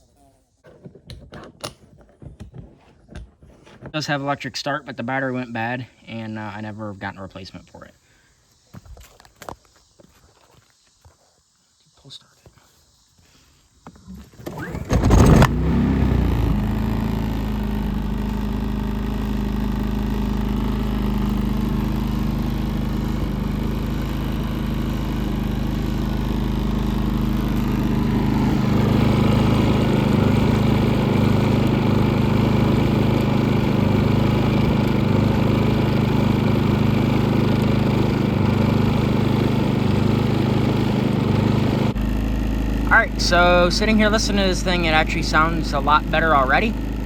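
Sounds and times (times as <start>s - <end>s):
generator pull start: 14.1s - 47.0s
generator engine running: 14.4s - 47.0s.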